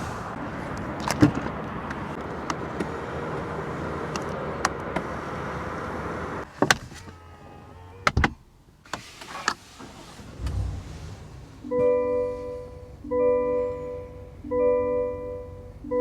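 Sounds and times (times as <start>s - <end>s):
vehicle running hum: 0.0s - 6.4s, 10.2s - 16.0s.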